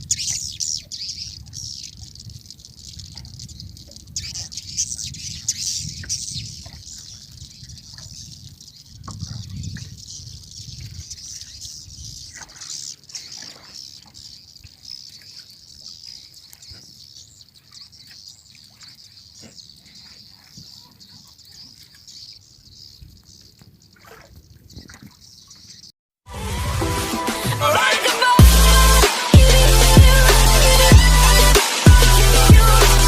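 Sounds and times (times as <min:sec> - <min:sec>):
birds twittering: 0:00.0 - 0:25.9
water lapping against boat: 0:12.2 - 0:22.2, 0:23.8 - 0:25.8
loud electronic music: 0:26.3 - 0:33.0.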